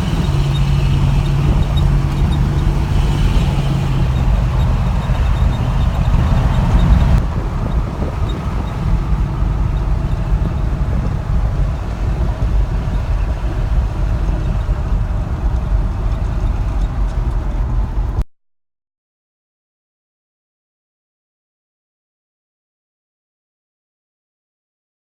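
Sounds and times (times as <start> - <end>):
engine rumbling through exhaust: 0.0 - 18.2.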